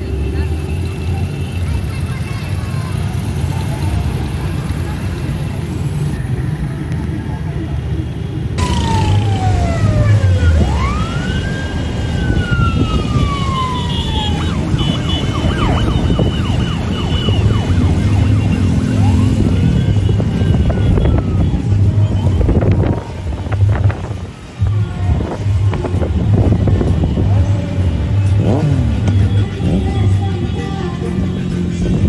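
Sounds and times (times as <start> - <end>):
sirens wailing: 0.0 - 19.2
rumble of motorcycle engines: 0.0 - 32.0.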